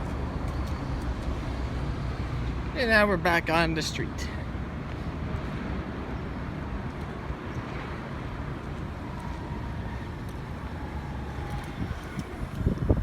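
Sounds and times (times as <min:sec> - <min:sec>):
traffic rumble: 0:00.0 - 0:13.0
wind on microphone: 0:09.2 - 0:13.0.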